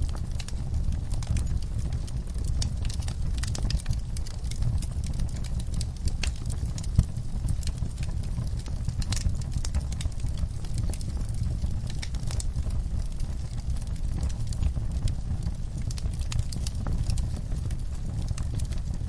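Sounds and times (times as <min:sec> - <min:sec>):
crackles and pops of burning wood: 0:00.0 - 0:19.0
wood fire burning: 0:00.0 - 0:19.0.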